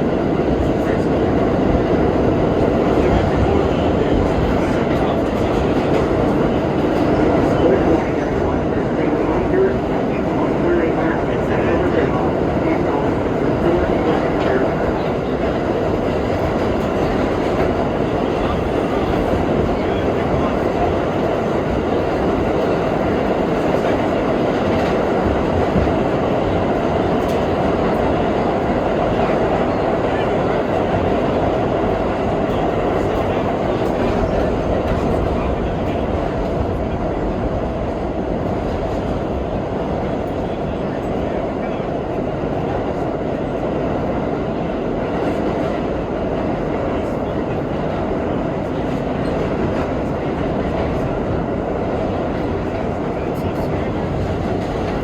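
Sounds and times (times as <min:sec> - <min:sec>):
subway wheels rumbling on rail: 0:00.0 - 0:55.0.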